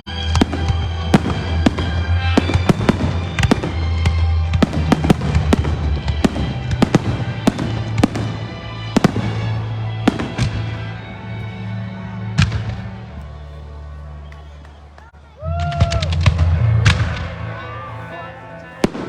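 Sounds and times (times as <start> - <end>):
fireworks bangs: 0.0 - 14.8, 18.8 - 19.0
music with low notes: 0.2 - 19.0.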